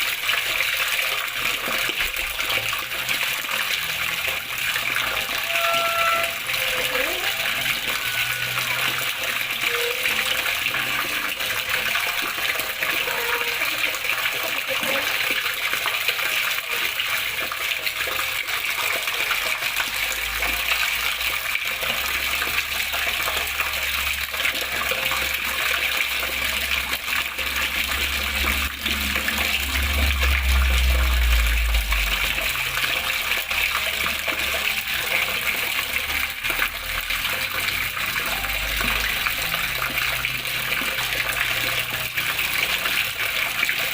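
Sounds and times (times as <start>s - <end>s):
water flowing and splashing: 0.0s - 43.9s
low rumble: 28.3s - 33.0s.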